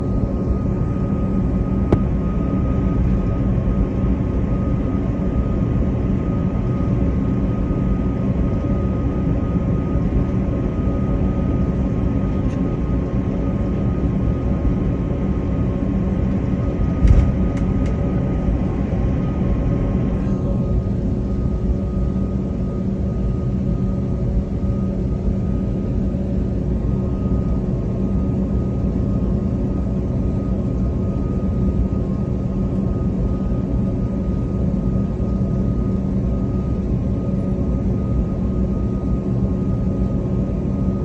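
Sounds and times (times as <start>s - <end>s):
aircraft engines droning: 0.0s - 41.0s
low thump: 1.9s - 2.1s, 17.0s - 17.4s.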